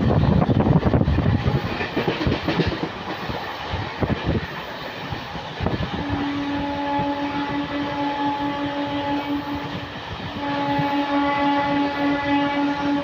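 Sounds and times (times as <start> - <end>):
train wheels clattering over joints: 1.2 - 5.4.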